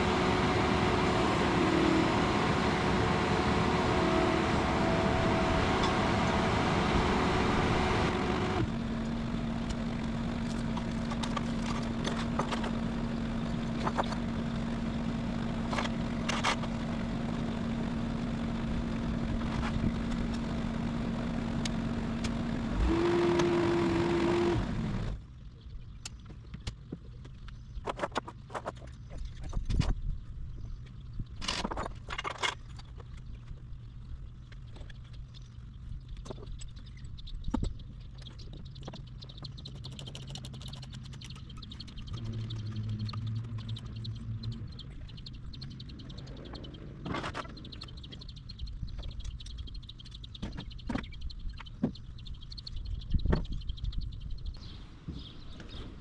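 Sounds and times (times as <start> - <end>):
diesel engine revving: 0.0 - 25.2.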